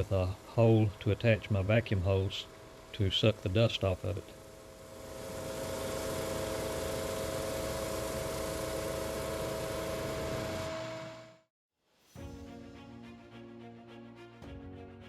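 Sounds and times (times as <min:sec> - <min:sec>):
drum sander whirring: 0:00.0 - 0:11.5.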